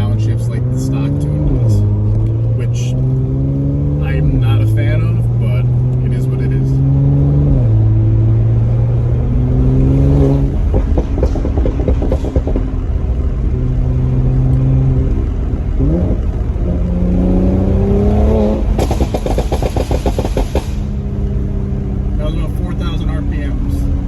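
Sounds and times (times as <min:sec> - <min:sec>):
car engine accelerating hard: 0:00.0 - 0:24.0
exhaust crackles and pops: 0:10.0 - 0:14.7, 0:18.0 - 0:21.1.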